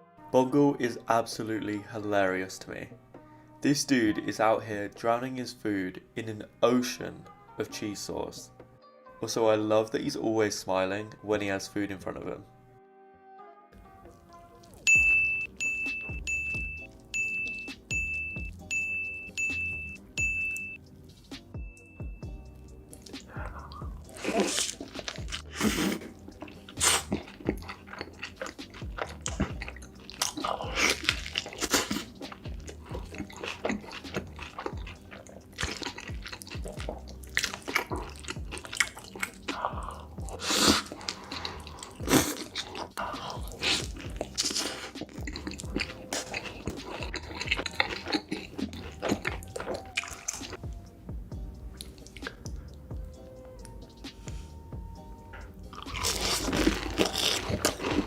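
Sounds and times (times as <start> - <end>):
faint music: 0.0 - 12.8, 13.5 - 58.0
wet chewing and biting: 22.9 - 50.8, 51.7 - 52.6, 55.7 - 58.0.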